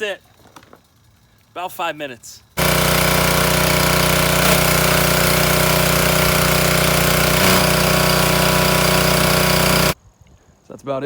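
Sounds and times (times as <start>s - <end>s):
snowblower engine running: 2.6s - 10.0s.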